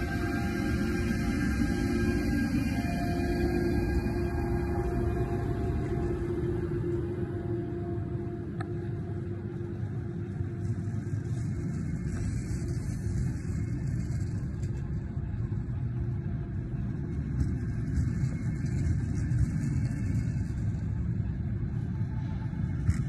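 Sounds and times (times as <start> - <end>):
railcar rumble on rails: 0.0 - 23.0.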